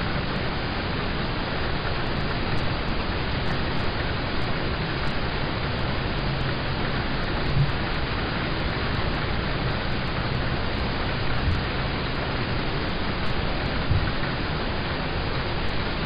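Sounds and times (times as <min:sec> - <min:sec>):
heavy rain on car roof: 0:00.0 - 0:16.0
soft low thuds: 0:13.8 - 0:14.2.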